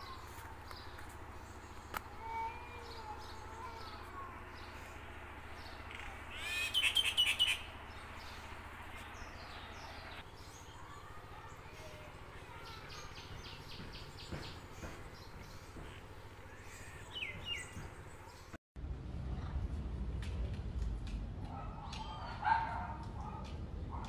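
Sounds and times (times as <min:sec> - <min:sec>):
birds chirping: 0:00.0 - 0:18.6.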